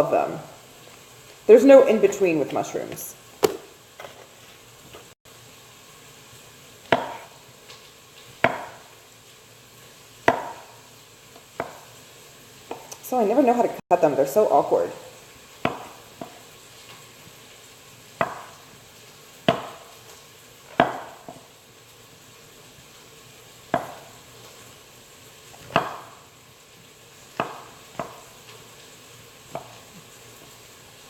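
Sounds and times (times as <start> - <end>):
knife chopping on cutting board: 3.4 - 4.2, 6.9 - 7.3, 8.4 - 8.9, 10.2 - 10.7, 11.4 - 11.9, 15.6 - 16.5, 18.2 - 18.6, 19.4 - 20.0, 20.7 - 21.5, 23.7 - 24.1, 25.6 - 26.2, 27.3 - 28.3, 29.5 - 29.9.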